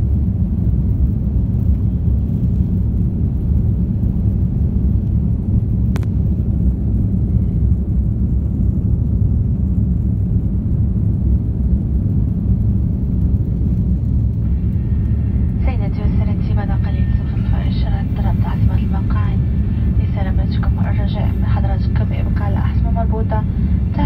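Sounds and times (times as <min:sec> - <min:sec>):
jet engines and airflow rumble: 0:00.0 - 0:24.0.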